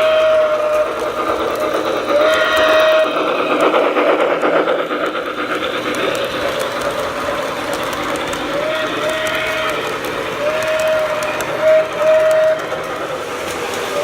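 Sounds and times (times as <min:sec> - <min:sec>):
model train whistle: 0:00.0 - 0:01.0, 0:02.2 - 0:03.3, 0:08.6 - 0:14.0
rhythmic train running noise: 0:00.0 - 0:14.0.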